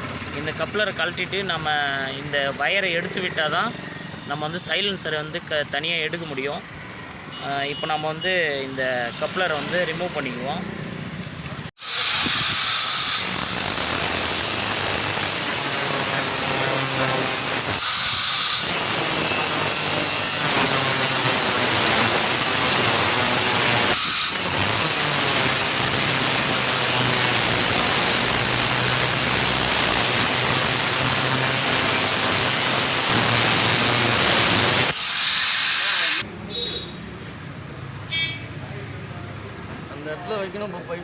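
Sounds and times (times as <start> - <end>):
angle grinder cutting metal: 11.8 - 36.3.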